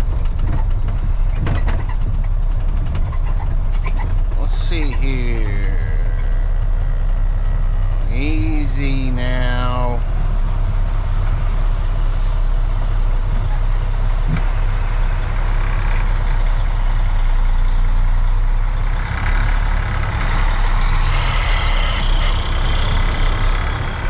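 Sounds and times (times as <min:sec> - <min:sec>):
truck diesel engine at low speed: 0:00.0 - 0:24.0
high squeal: 0:20.9 - 0:23.5.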